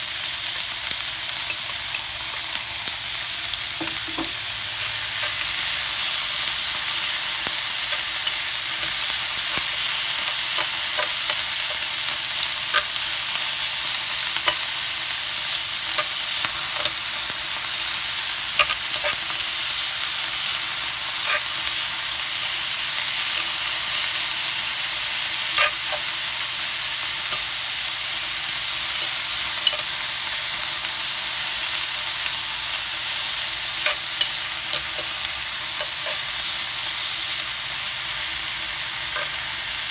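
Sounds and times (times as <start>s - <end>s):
food sizzling in a pan: 0.0s - 39.9s
tongs clicking on pan: 1.3s - 2.6s, 5.1s - 5.8s, 6.4s - 13.0s, 15.9s - 17.4s, 18.5s - 19.3s, 25.5s - 26.1s, 29.0s - 30.0s, 33.8s - 36.3s, 39.2s - 39.4s.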